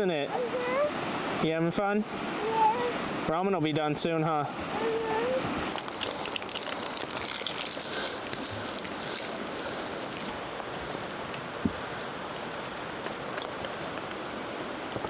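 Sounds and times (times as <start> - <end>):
rain and wet snow falling: 4.7 - 15.0
drops ticking: 5.7 - 10.3.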